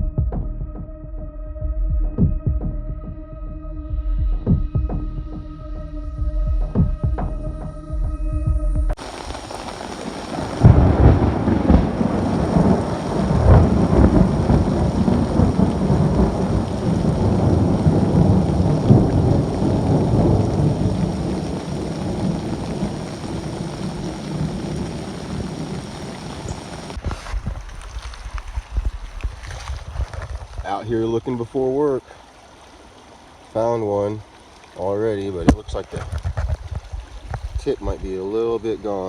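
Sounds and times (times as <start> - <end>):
steady rain: 8.9 - 39.0
deep rolling thunder: 9.0 - 27.0.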